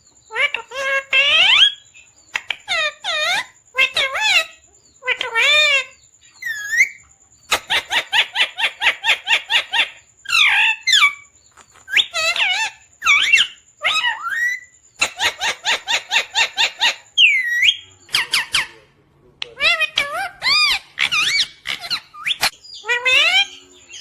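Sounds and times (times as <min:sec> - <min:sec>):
parrot whistled calls: 0:05.5 - 0:11.2, 0:11.9 - 0:18.8, 0:19.6 - 0:23.7.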